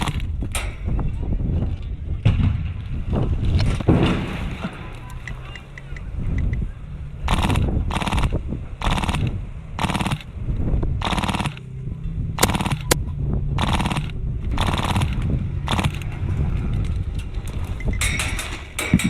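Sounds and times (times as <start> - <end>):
airsoft gun firing bursts: 0.0 - 0.3, 7.3 - 10.3, 11.0 - 11.6, 12.4 - 13.0, 13.6 - 16.0
sharp single shots: 7.3 - 10.3.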